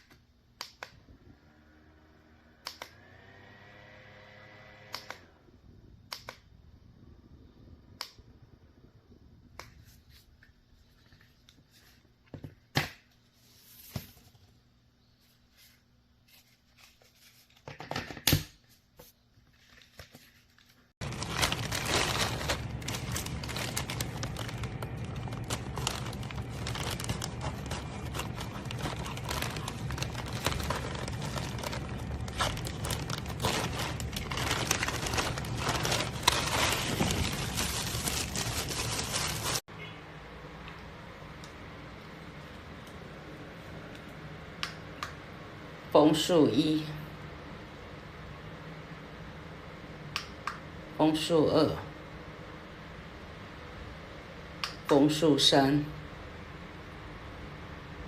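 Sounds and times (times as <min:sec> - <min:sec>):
fan switch clicks: 0:04.9 - 0:05.2
loud crinkling rustle: 0:21.0 - 0:39.7.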